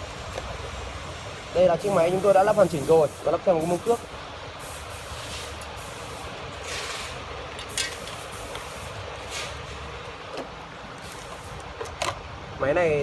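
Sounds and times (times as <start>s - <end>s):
short hissing surges: 1.6s - 10.0s.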